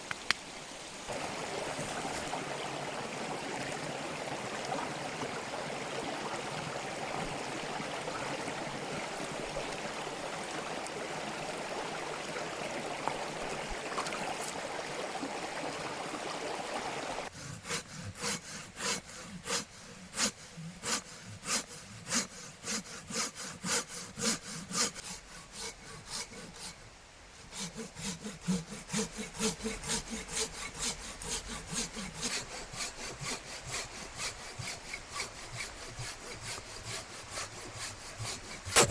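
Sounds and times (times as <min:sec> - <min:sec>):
stream water rushing: 0:00.0 - 0:38.9
hand saw cutting wood: 0:17.3 - 0:38.9.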